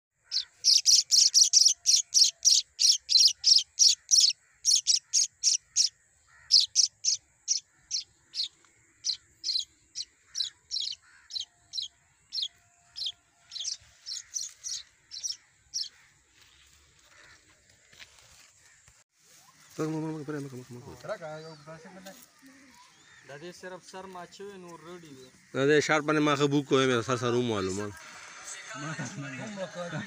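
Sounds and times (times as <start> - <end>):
small bird chirping: 0.2 - 16.0.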